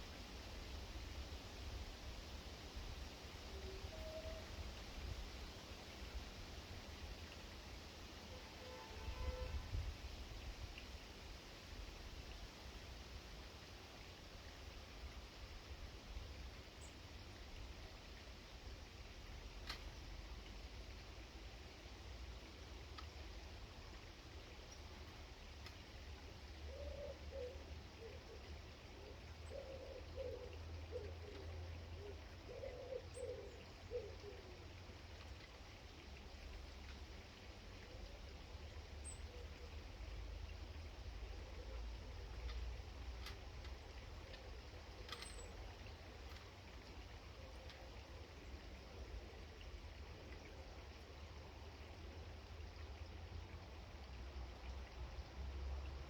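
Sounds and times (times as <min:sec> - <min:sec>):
small bird chirp: 0:45.1 - 0:45.6.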